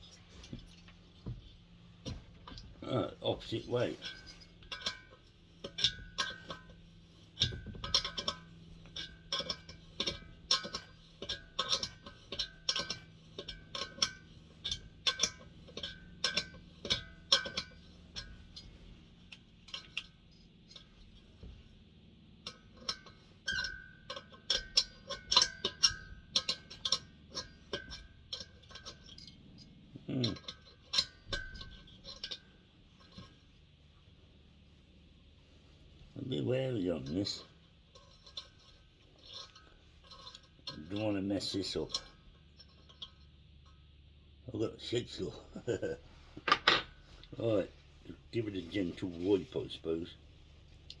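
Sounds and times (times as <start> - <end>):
spanner clicking on bolt: 7.4 - 18.3.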